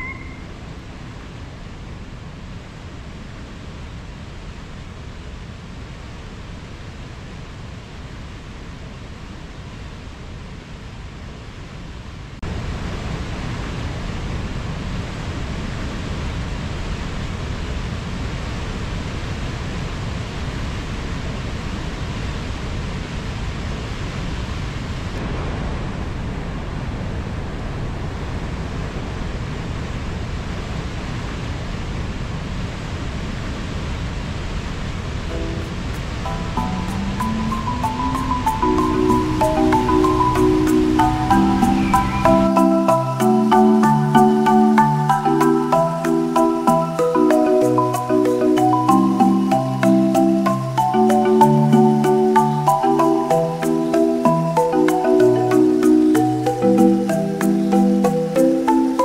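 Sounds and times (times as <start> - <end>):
waterfall rushing: 0.0 - 1.3, 34.9 - 59.0.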